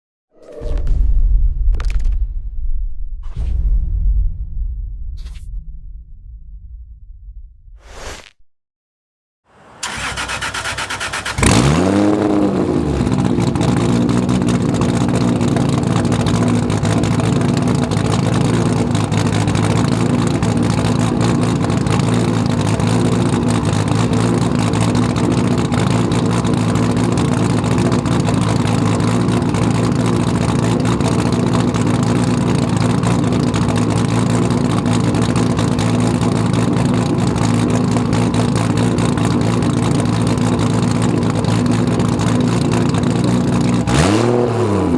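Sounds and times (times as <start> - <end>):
car engine starting and idling: 9.5 - 44.9.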